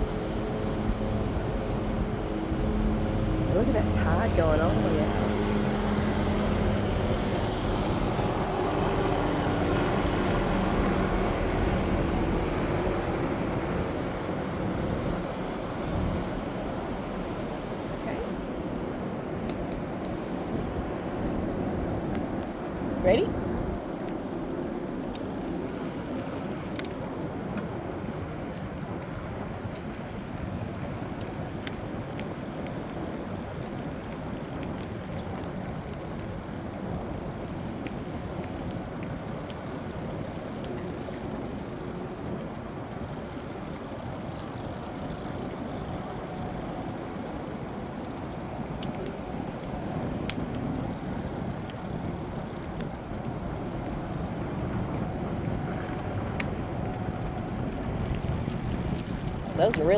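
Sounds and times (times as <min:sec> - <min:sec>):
e-bike rumbling: 0:00.0 - 0:15.2, 0:16.8 - 0:59.9
light clicks and rattles: 0:22.1 - 0:59.9.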